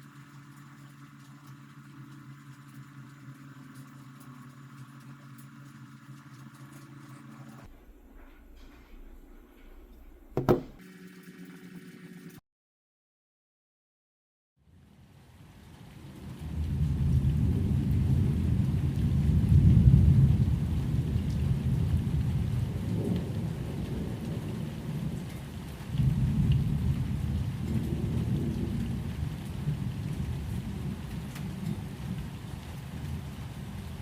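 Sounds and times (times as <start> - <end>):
faint rain hiss: 0.0 - 9.7, 14.7 - 34.0
thunder rumbling: 16.2 - 25.3, 25.9 - 34.0.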